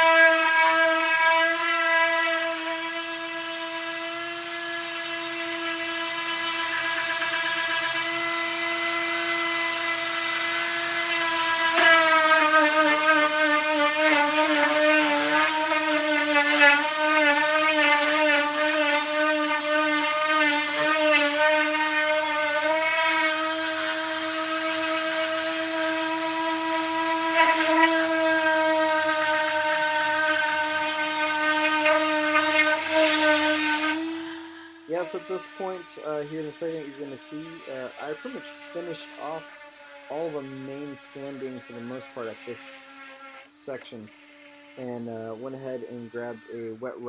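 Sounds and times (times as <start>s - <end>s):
electric sander on wood: 0.0s - 47.0s.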